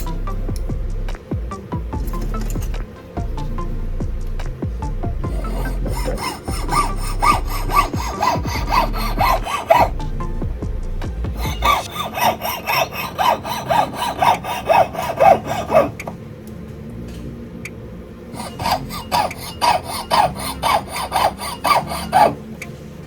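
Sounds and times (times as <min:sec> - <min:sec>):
hand tool filing metal: 0:05.2 - 0:10.1, 0:11.4 - 0:16.1, 0:18.4 - 0:22.4.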